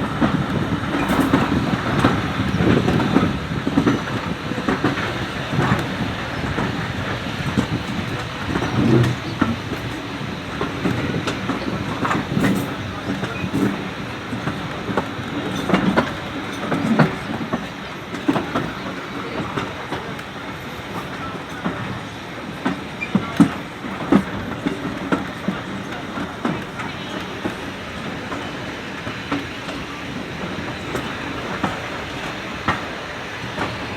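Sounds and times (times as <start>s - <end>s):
steam train rumbling on track: 0.0s - 33.9s
wheels clicking over rail joints: 0.0s - 33.9s.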